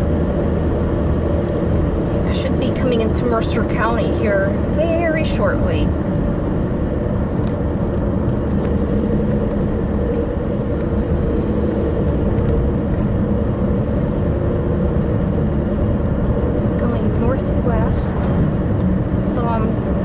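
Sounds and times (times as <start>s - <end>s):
car engine and tyre hum: 0.0s - 20.0s.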